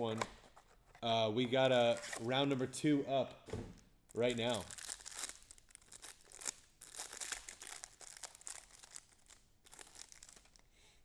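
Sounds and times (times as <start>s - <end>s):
wrapper tearing and crinkling: 4.1s - 10.6s.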